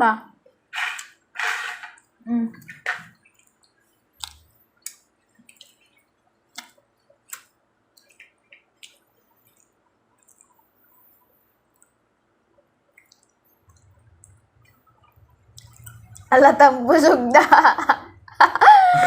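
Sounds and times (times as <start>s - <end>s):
lip smacks and clicks: 3.2s - 10.6s, 12.9s - 16.3s
wet chewing: 3.2s - 10.6s, 12.9s - 16.3s.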